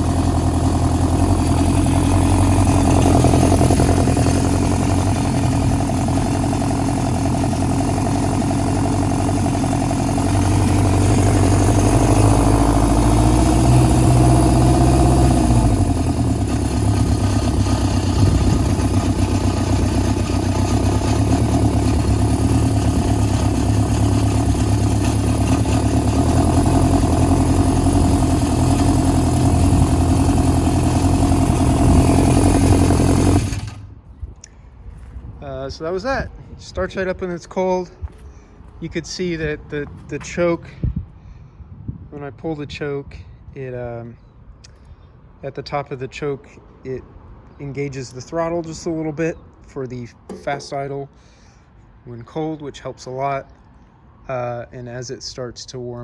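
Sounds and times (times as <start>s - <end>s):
motorcycle engine idling: 0.0s - 34.2s, 50.3s - 51.2s.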